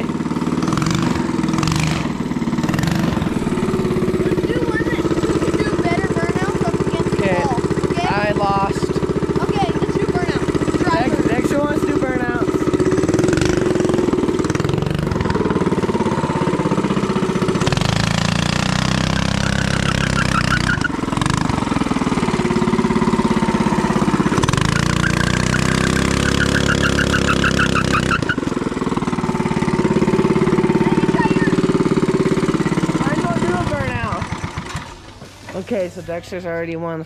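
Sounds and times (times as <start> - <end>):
mini bike engine revving: 0.0 - 36.8
wavering high-pitched squeal: 24.5 - 28.4.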